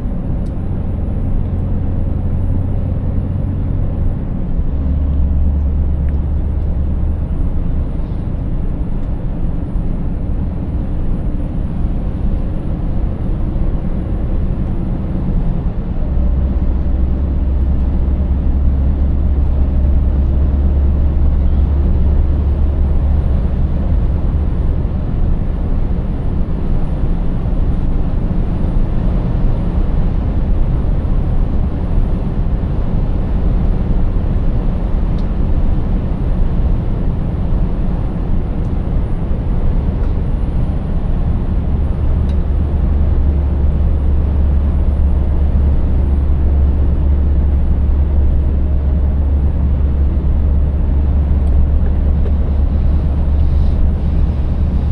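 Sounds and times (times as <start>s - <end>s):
truck diesel engine running: 0.0s - 54.9s
tyre and road noise: 2.0s - 54.9s.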